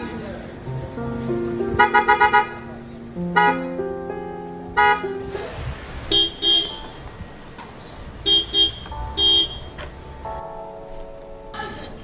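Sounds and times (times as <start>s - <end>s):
car horn blasts: 1.8s - 2.6s, 3.4s - 3.7s, 4.8s - 5.2s, 6.1s - 7.0s, 8.2s - 9.8s.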